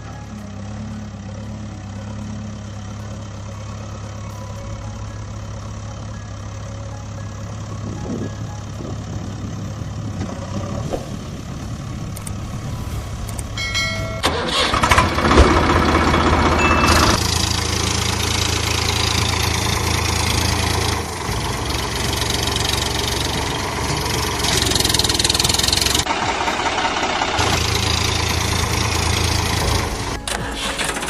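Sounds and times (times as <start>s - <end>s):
vehicle engine idling: 0.0s - 31.0s
short high-pitched tone: 16.6s - 17.2s.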